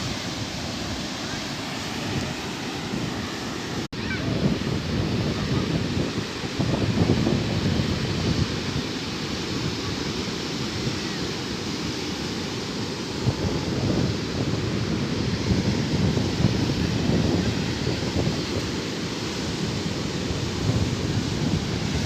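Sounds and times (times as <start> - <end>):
sea surf washing on shore: 0.0 - 22.0
wind buffeting microphone: 0.0 - 22.0.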